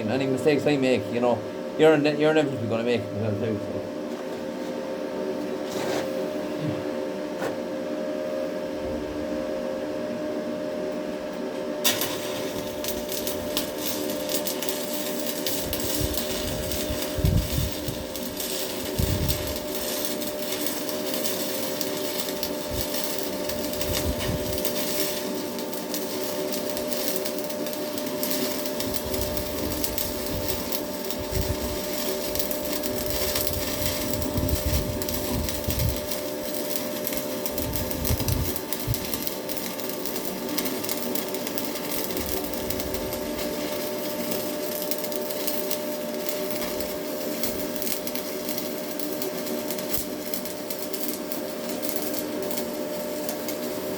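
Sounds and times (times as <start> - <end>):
constant hum: 0.0 - 53.8
welding arc crackling: 11.8 - 53.9.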